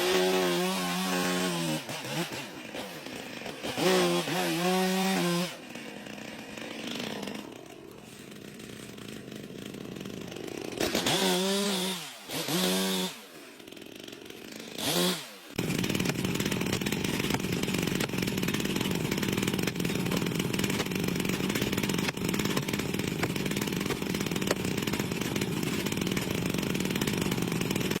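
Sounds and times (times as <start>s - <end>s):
chainsaw revving: 0.0s - 28.0s.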